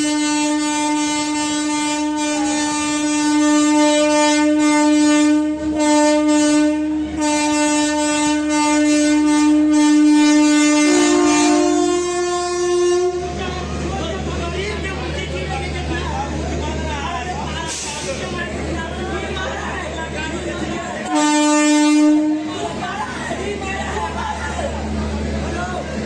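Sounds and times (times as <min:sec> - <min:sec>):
train horn blasts: 0:00.0 - 0:13.6, 0:21.0 - 0:22.8.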